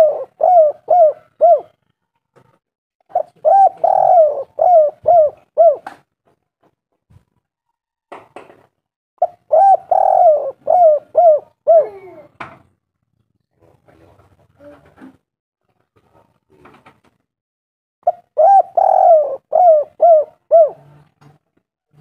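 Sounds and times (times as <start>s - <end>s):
dove cooing: 0.0s - 1.9s, 3.1s - 6.0s, 9.2s - 12.4s, 18.0s - 21.0s.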